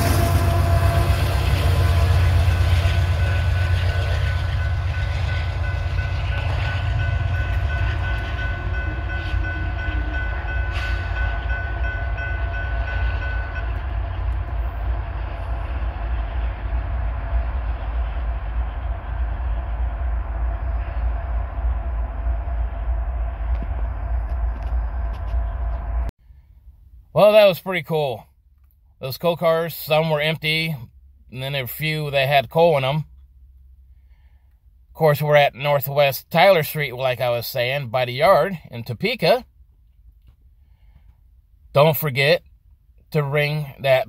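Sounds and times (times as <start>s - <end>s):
train wheels rumbling on rails: 0.0s - 26.1s.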